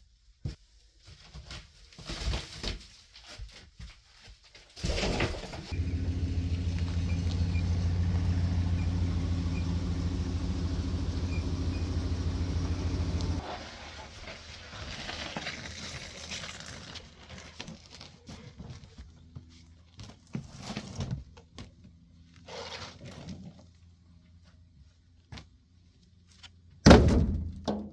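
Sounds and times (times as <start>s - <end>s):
motor humming: 5.7s - 13.4s.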